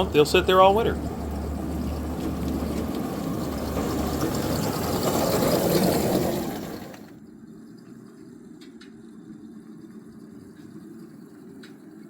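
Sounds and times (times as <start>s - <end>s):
miniature train rolling on track: 0.0s - 7.2s.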